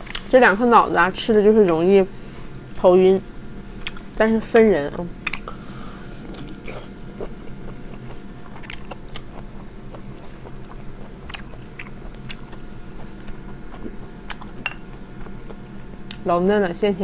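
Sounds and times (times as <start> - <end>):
person chewing: 5.2 - 16.2.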